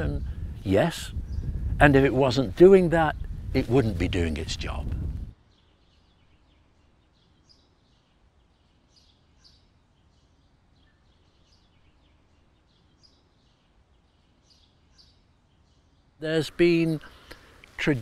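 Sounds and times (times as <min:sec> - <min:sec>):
faint outdoor ambience: 0:00.0 - 0:18.0.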